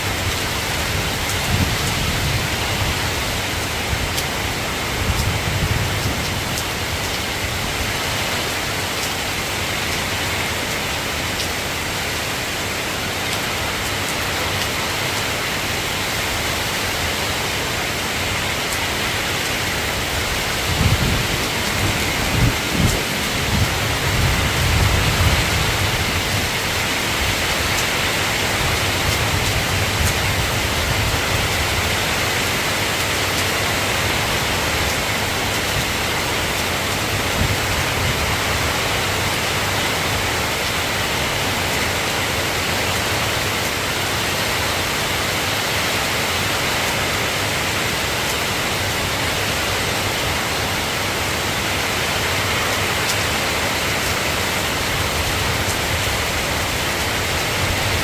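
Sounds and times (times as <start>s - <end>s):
steady rain falling: 0.0s - 58.0s
low rumble of thunder: 20.3s - 32.2s.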